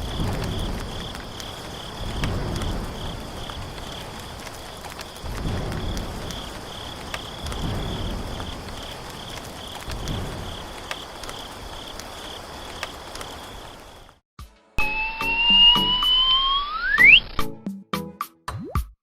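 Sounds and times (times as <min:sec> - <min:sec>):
cricket chirping: 0:00.0 - 0:14.2.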